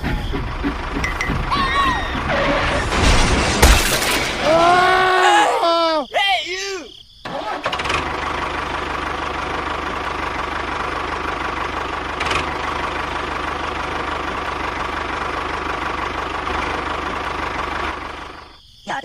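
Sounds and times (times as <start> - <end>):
tractor engine idling: 0.0 - 4.6, 7.3 - 18.6.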